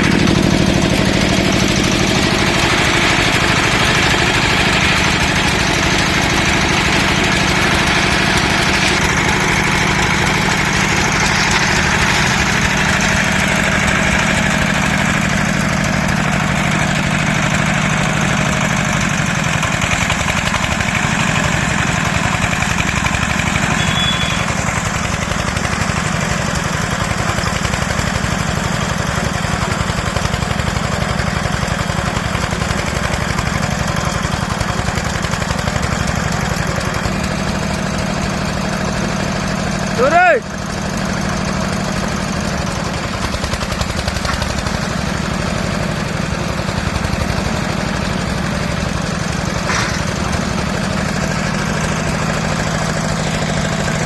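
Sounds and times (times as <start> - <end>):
machine engine drone: 0.0 - 27.9.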